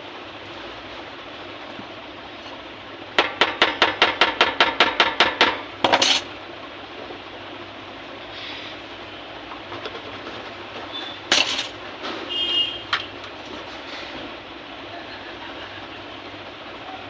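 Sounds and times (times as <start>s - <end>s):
steady background hum: 0.0s - 17.0s
small hammer tapping: 3.2s - 6.1s.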